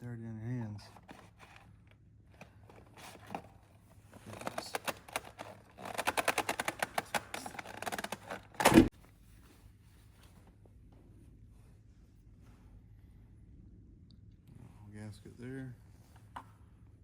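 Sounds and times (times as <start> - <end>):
clicks and rattles: 4.2 - 8.9.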